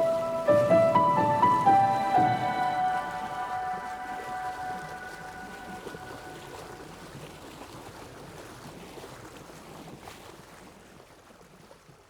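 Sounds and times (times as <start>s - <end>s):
held music chord: 0.0s - 6.8s
sea water splashing: 0.0s - 9.9s.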